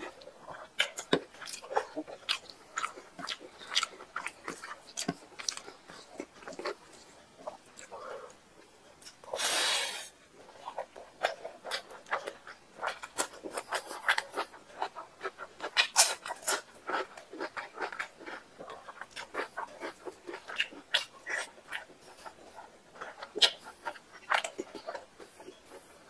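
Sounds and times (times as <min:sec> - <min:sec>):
wet chewing and lip smacking: 0:00.0 - 0:09.4, 0:10.3 - 0:26.0
short breathy burst: 0:09.3 - 0:10.1.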